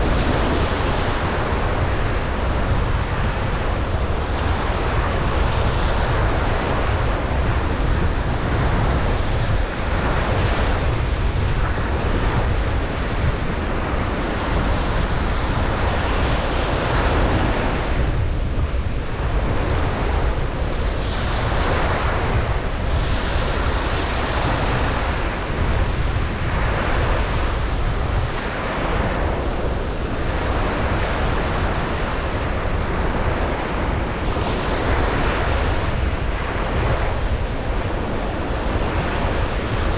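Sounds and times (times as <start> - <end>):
low rumble of wind: 0.0 - 39.9
ocean surf breaking: 0.0 - 39.9.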